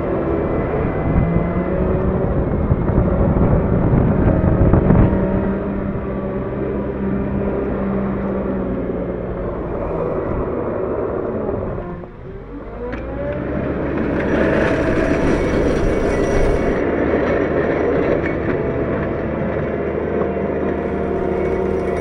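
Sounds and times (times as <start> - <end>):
loader diesel engine revving: 6.8 - 16.8, 20.8 - 22.0.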